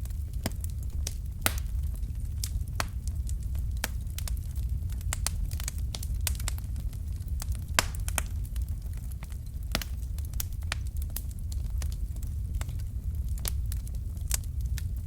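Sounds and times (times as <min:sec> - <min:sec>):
fire crackling and popping: 0:00.0 - 0:15.0
low fire rumble: 0:00.0 - 0:15.0.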